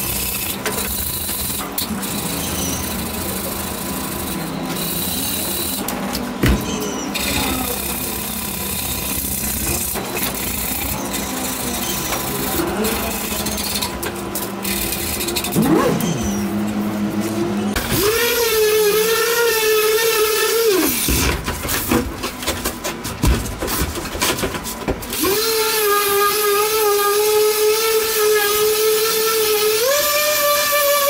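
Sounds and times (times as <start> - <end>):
electric power tool whining: 0.0 - 22.1, 25.1 - 31.0
knocks and scraping: 20.8 - 25.2.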